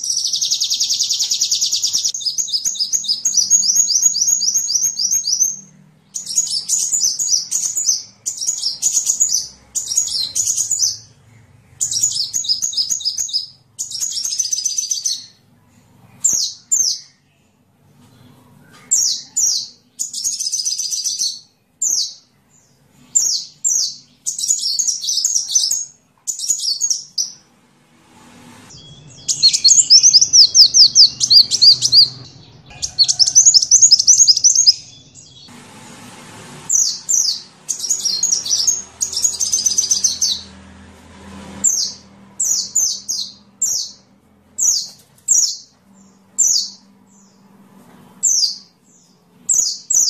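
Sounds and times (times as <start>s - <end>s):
bird twittering chirps: 0.0s - 15.4s, 28.7s - 35.5s, 36.7s - 40.5s.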